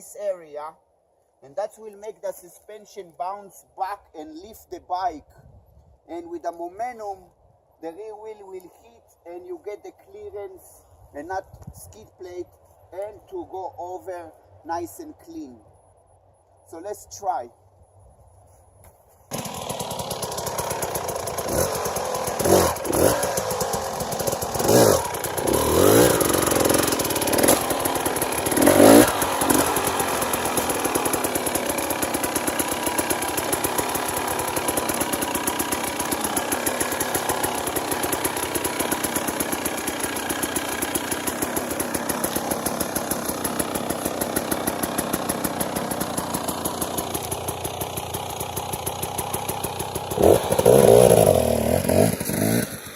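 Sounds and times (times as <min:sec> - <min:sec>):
dirt bike engine revving: 0:19.3 - 0:52.9.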